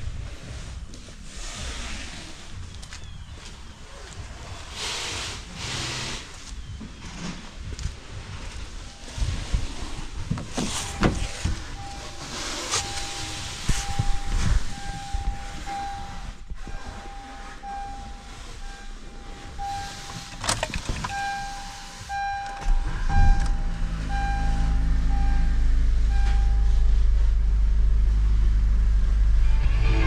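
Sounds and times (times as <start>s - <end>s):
car engine running: 0.0s - 30.0s
car warning chime beeping: 8.4s - 27.0s.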